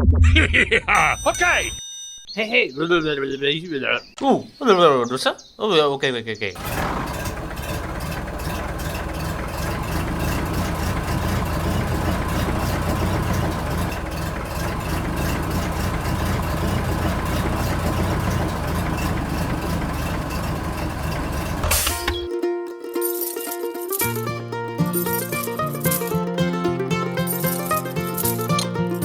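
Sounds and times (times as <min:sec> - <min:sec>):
engine idling: 0:06.6 - 0:22.3, 0:25.0 - 0:29.0
music: 0:21.9 - 0:29.0.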